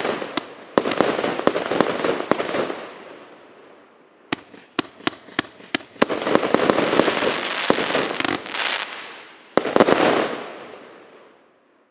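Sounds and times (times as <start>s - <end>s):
fireworks cake firing: 4.3s - 10.8s.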